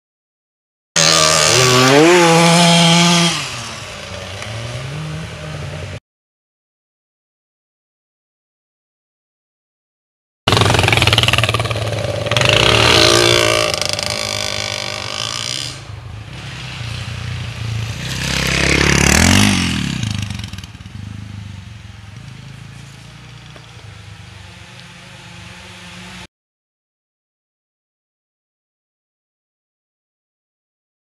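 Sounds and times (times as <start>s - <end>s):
dirt bike engine revving: 1.0s - 6.0s, 10.5s - 26.3s.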